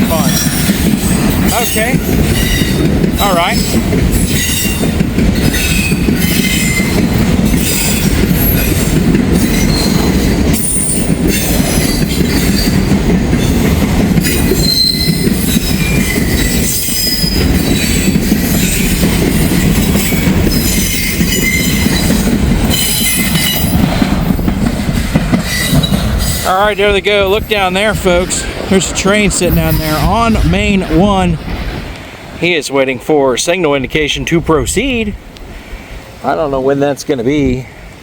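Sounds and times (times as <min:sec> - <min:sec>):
freight train rumbling: 0:00.0 - 0:38.0
train wheel squeals: 0:00.1 - 0:24.4, 0:25.4 - 0:26.5.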